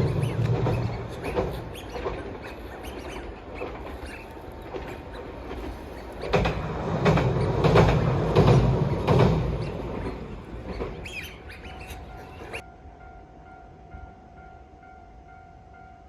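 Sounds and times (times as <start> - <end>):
train wheels clacking over rail joints: 0.0 - 12.6
train rumbling past: 0.0 - 16.0.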